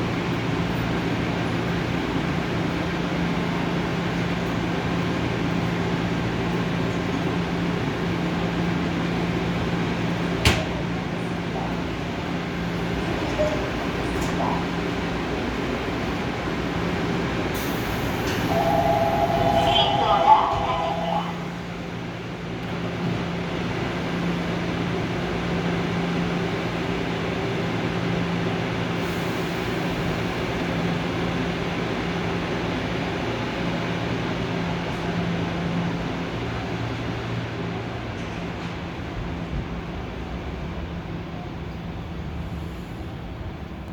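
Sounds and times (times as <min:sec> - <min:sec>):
subway train humming: 0:00.0 - 0:43.9.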